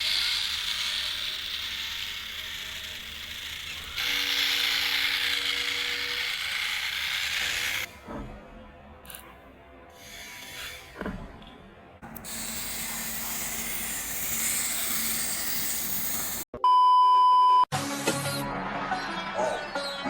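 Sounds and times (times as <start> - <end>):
small electric motor whirring: 0.0 - 7.9, 12.1 - 16.5.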